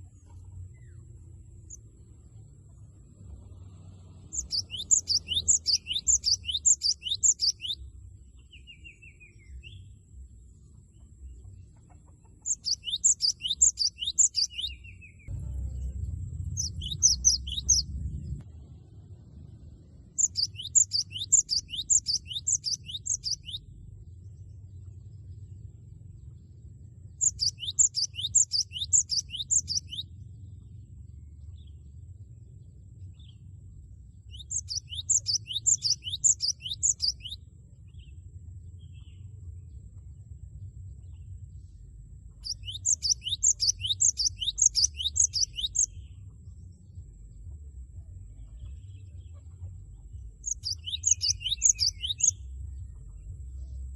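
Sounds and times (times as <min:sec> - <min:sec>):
bird singing whistled notes: 0:04.2 - 0:10.0, 0:12.4 - 0:18.4, 0:20.1 - 0:24.1, 0:27.1 - 0:31.8, 0:34.1 - 0:39.4, 0:41.0 - 0:47.4, 0:49.8 - 0:53.9.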